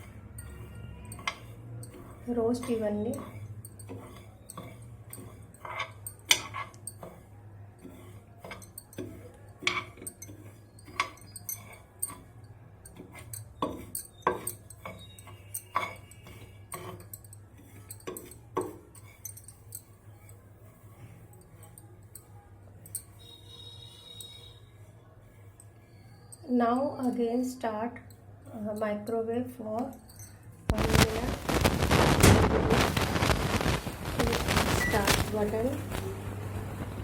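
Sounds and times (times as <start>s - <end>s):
spoon clinking and scraping plate: 0.0s - 24.6s.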